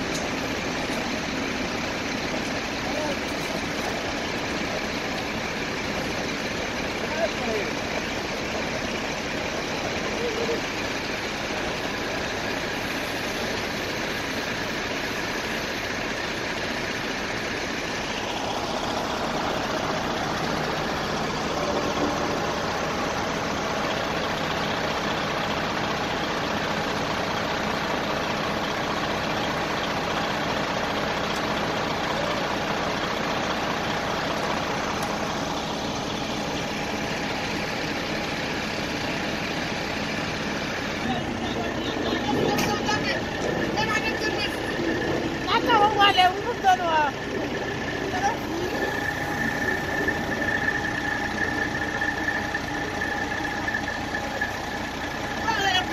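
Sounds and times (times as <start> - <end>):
fire truck engines idling: 0.0 - 55.9
faint steady tones: 28.6 - 55.9.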